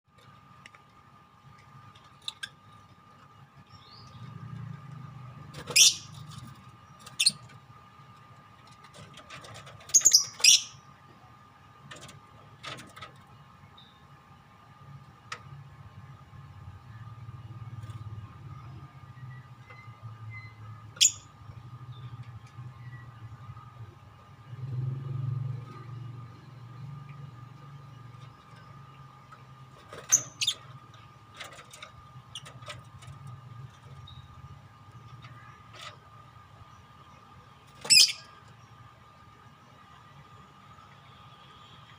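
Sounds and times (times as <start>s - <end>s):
faint steady hum: 0.1s - 41.9s
lovebirds chirping: 5.6s - 7.5s, 9.9s - 10.9s, 36.6s - 40.0s
lovebirds screeching: 5.6s - 7.5s, 9.8s - 10.9s, 29.9s - 30.8s, 37.8s - 38.4s.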